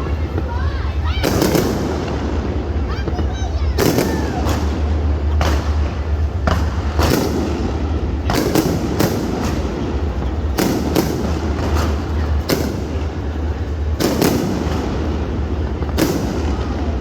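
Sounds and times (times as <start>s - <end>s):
continuous rumble: 0.0s - 17.0s
fireworks bangs: 0.0s - 17.0s.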